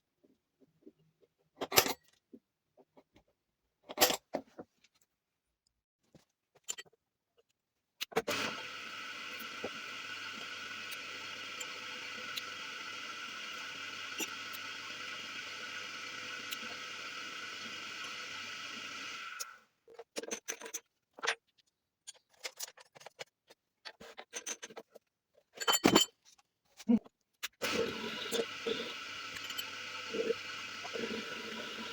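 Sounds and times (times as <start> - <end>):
machine hum: 8.3 - 19.6, 27.6 - 31.9.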